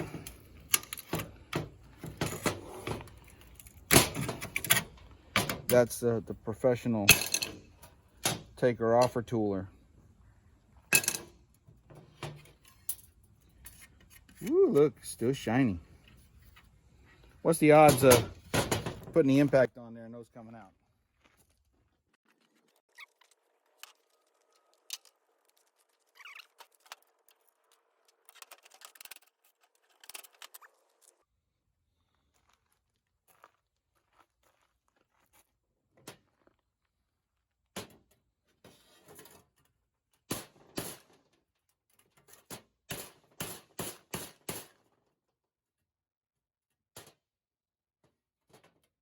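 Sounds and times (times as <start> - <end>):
hand tools clicking and scraping: 0.0 - 9.4, 10.9 - 19.6, 22.3 - 31.2
small metal parts handled: 7.1 - 8.4, 10.9 - 14.5, 23.8 - 31.1.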